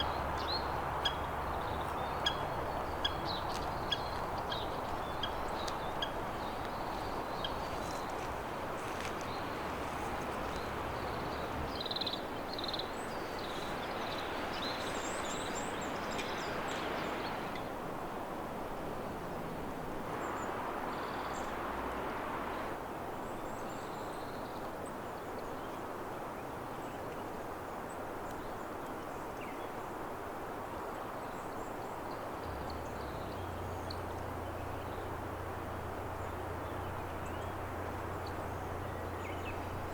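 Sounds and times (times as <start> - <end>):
small birds chirping: 31.5 - 39.9.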